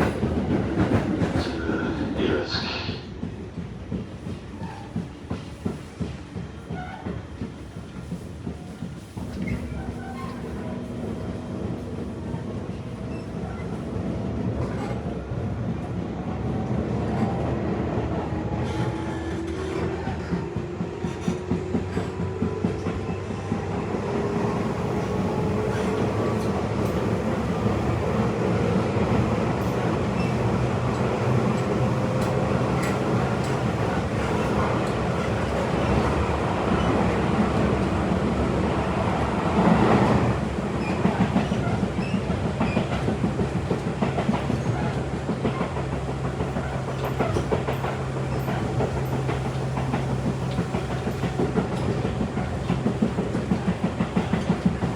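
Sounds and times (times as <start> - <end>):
wheels clacking over rails: 18.4 - 54.9.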